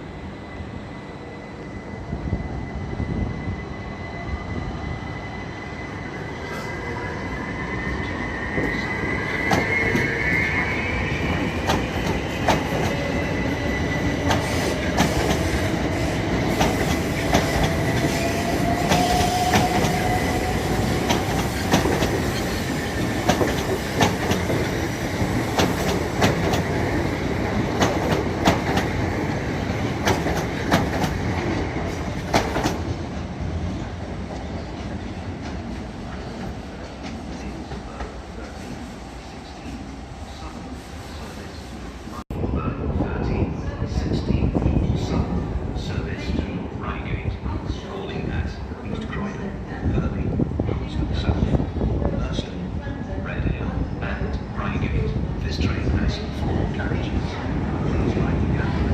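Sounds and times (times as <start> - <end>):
train rumble on rails: 0.0 - 58.9
train wheels squealing: 0.2 - 27.0.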